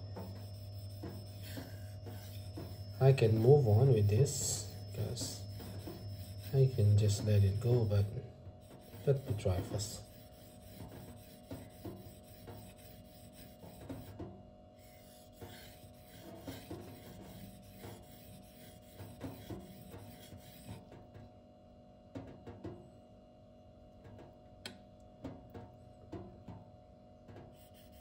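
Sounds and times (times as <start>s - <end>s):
knife rasping on sharpening stone: 0.0s - 14.1s, 14.8s - 20.8s.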